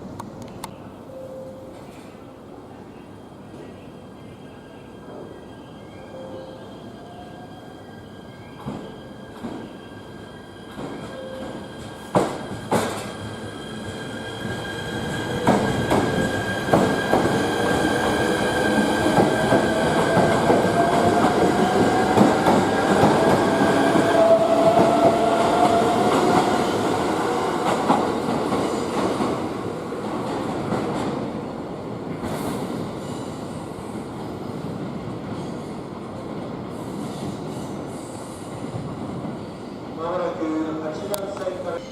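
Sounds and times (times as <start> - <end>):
train passing: 0.8 - 41.9
squealing train wheels: 4.5 - 29.1.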